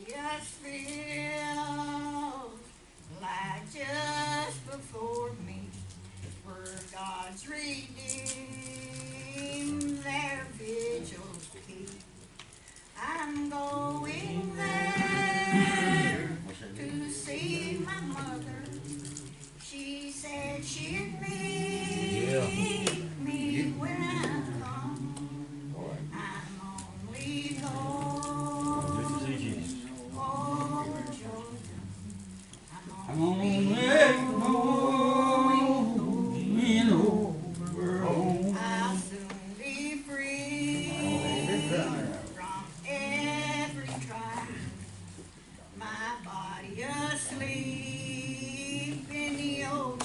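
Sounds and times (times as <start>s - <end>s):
group singing a gospel hymn: 0.0s - 12.2s, 13.0s - 50.0s.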